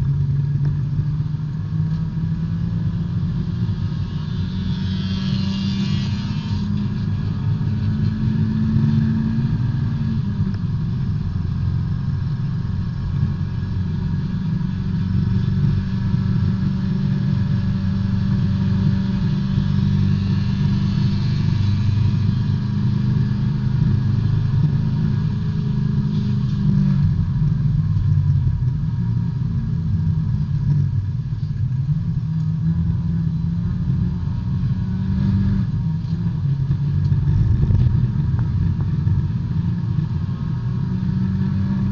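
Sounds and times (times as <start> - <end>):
race car engine from inside cabin: 0.0 - 41.9.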